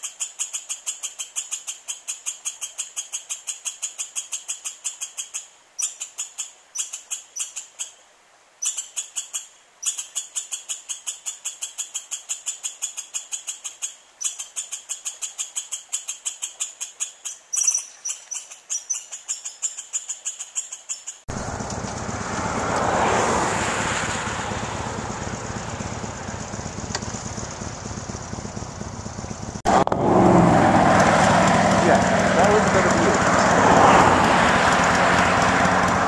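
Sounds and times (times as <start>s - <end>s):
high repeated chirping: 0.0s - 8.0s, 8.6s - 21.3s
vehicle and wind rushing: 21.3s - 27.0s, 29.4s - 36.0s.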